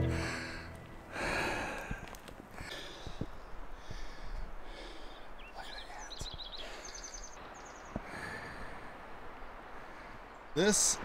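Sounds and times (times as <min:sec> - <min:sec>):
songbird chirping and trilling: 0:05.1 - 0:08.0.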